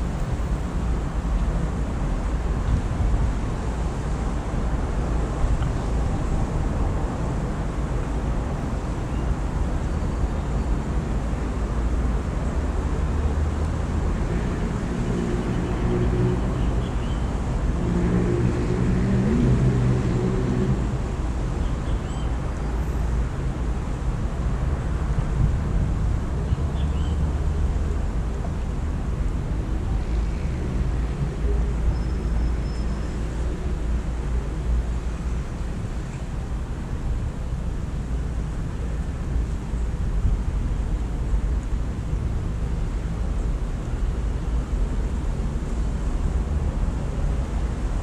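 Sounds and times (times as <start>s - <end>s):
low traffic rumble: 0.0s - 48.0s.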